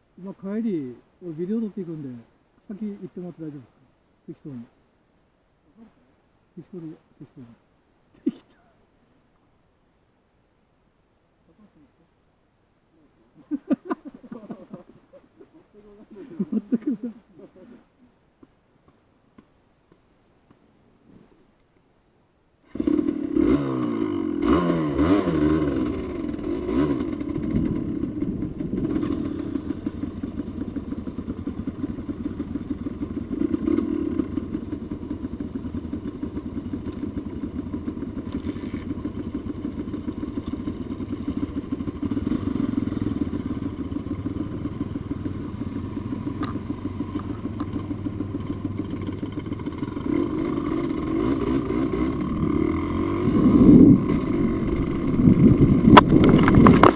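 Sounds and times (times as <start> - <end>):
motorcycle engine revving: 22.7 - 56.9.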